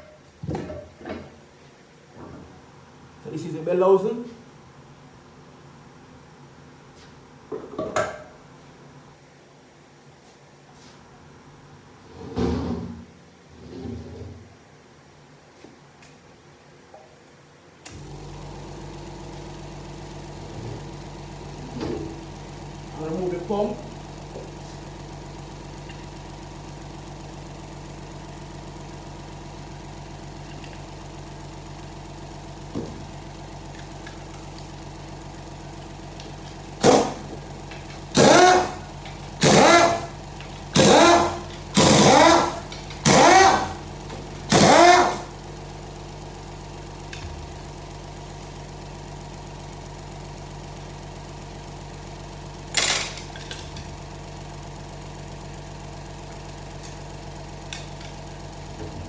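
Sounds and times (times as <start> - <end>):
steady mechanical hum: 0.0 - 59.0
power tool spinning bolts: 36.2 - 45.6, 52.6 - 54.0.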